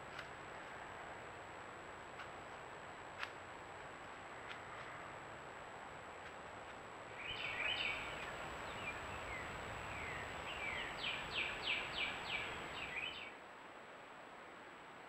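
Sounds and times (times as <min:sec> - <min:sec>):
steady hiss: 0:04.5 - 0:13.4
songbird singing: 0:07.1 - 0:13.4.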